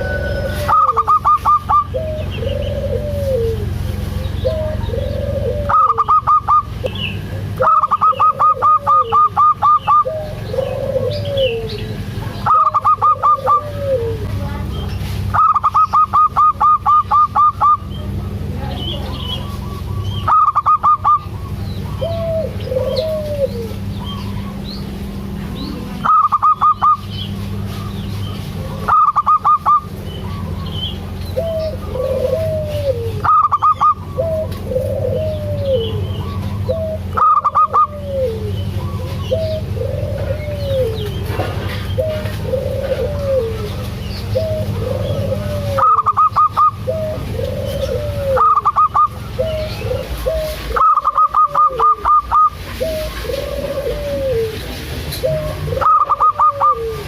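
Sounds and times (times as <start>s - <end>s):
soft low coo notes: 0.0s - 3.8s, 31.3s - 57.0s
doves calling rapid notes: 0.0s - 57.0s
steady low hum: 0.0s - 57.0s.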